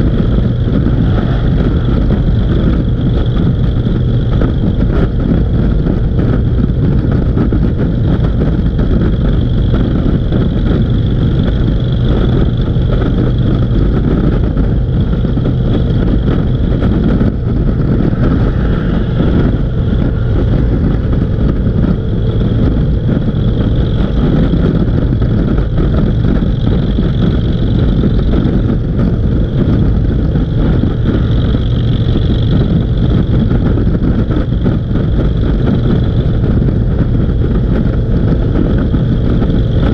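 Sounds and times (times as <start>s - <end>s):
motorcycle engines running: 0.0s - 39.9s
wind noise: 0.0s - 39.9s.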